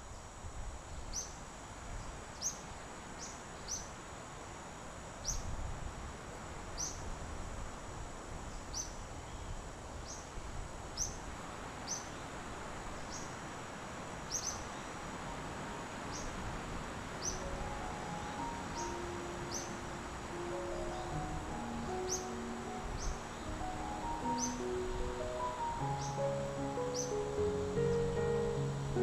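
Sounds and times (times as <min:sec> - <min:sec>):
steady hiss: 0:00.0 - 0:29.0
soft held music notes: 0:15.0 - 0:29.0
bird chirping: 0:17.2 - 0:29.0.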